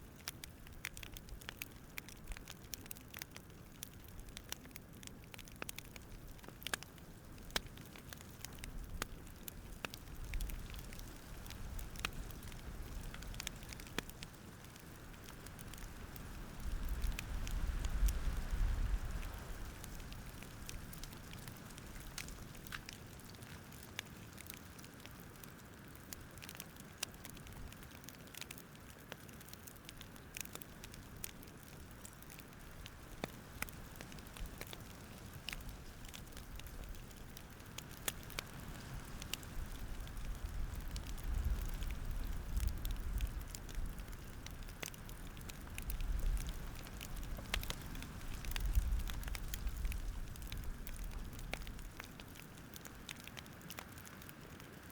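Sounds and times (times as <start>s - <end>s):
campfire crackling: 0.0s - 54.9s.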